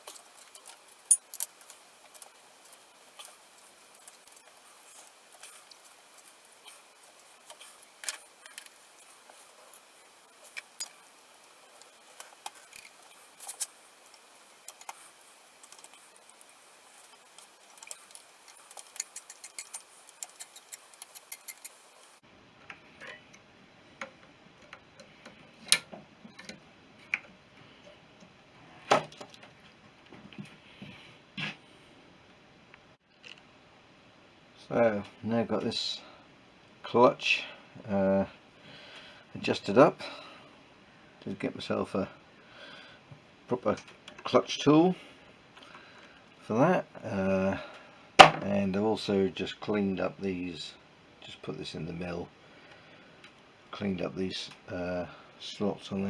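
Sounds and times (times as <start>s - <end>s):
hand tools clicking on metal: 17.8s - 21.9s.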